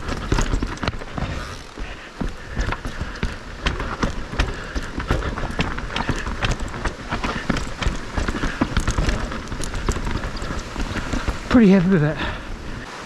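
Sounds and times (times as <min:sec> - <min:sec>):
chain and frame rattling: 0:00.0 - 0:12.0
tyres rumbling over dirt: 0:00.0 - 0:13.0.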